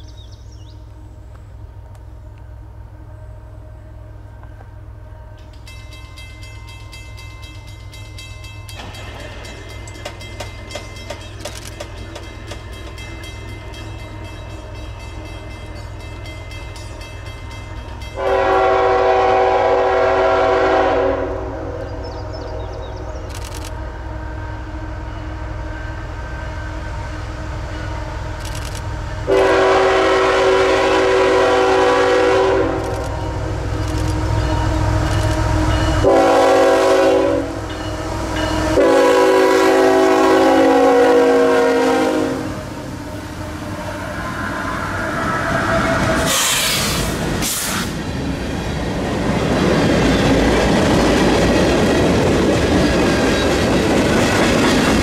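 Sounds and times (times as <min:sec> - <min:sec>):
wheels clattering on rails: 0:05.4 - 0:18.2, 0:45.5 - 0:55.0
locomotive air horn blasts: 0:18.2 - 0:22.0, 0:29.2 - 0:33.6, 0:34.7 - 0:37.7, 0:38.6 - 0:47.9
high squeal: 0:43.8 - 0:48.0.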